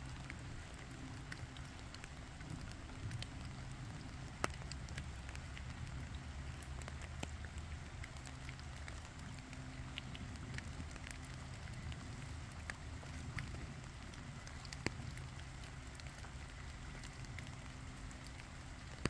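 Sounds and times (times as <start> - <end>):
light rain dripping on water: 0.0 - 19.0
low steady rumble: 0.0 - 19.0.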